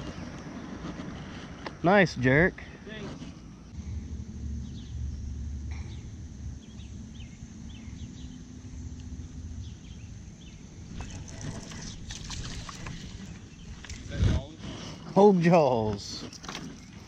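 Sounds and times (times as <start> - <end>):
faint steady hum: 0.0 - 14.8
small birds chirping: 0.0 - 17.0
wind rumble on microphone: 2.9 - 15.1.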